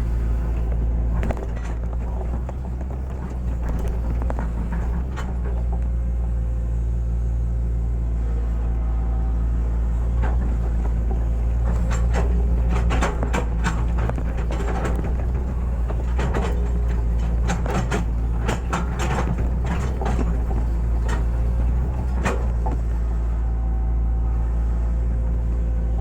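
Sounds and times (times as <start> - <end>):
excavator knocks and scrapes: 0.0 - 6.4, 9.8 - 23.4
excavator diesel engine running: 0.0 - 26.0.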